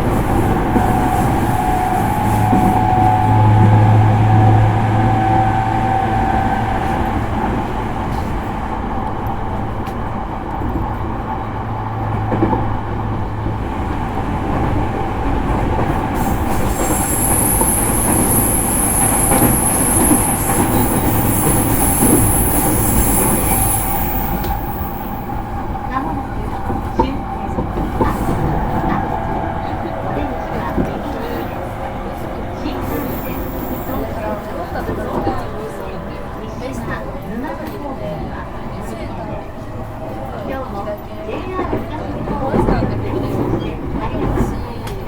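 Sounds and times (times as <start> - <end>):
train wheels rumbling on rail: 0.0 - 45.0
high-pitched wheel squeal: 16.2 - 25.4.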